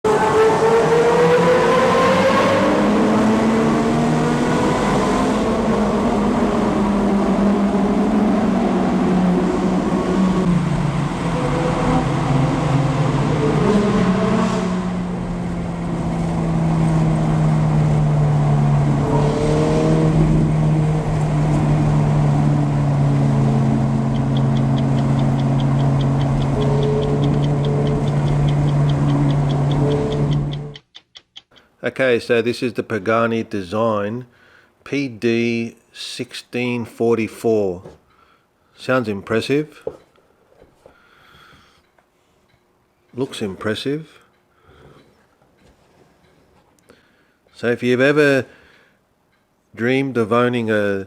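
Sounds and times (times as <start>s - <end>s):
sports car engine revving: 0.1s - 30.8s.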